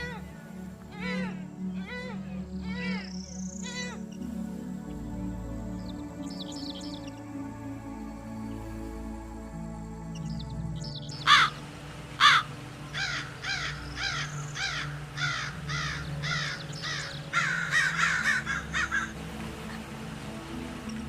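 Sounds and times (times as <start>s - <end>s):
bird calling harshly: 11.2s - 11.6s, 12.2s - 19.2s.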